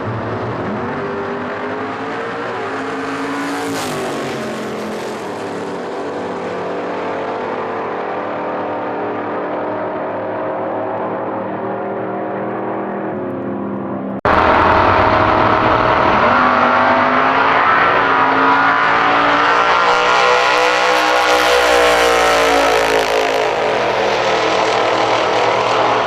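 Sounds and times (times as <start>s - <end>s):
racing engine revving: 14.2s - 26.0s.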